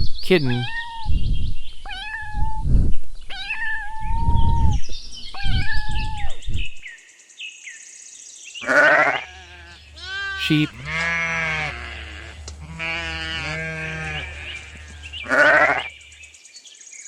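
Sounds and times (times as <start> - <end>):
kitten meowing: 1.9 - 2.7, 3.3 - 4.8, 5.4 - 6.4, 8.8 - 11.0
loud animal call: 8.6 - 16.2.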